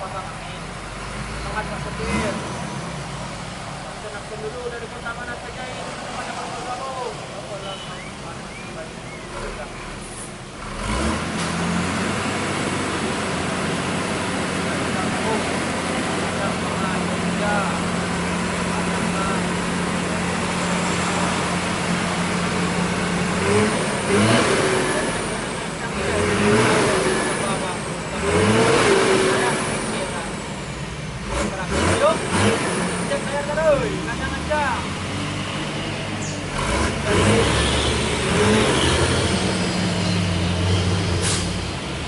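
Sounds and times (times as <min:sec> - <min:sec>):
road noise: 0:00.0 - 0:42.0
truck engine running: 0:00.0 - 0:42.0
short hiss: 0:41.2 - 0:41.6.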